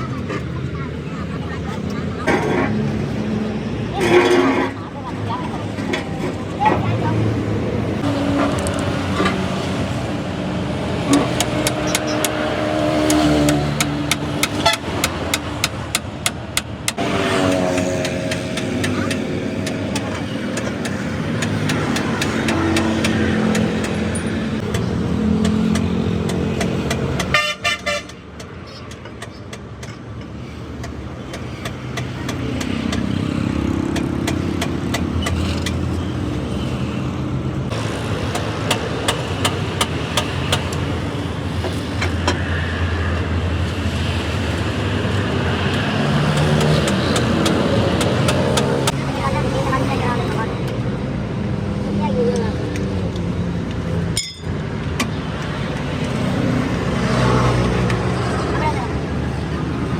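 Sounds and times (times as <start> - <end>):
vehicle engines running: 0.0 - 59.9
horns honking: 27.2 - 28.3.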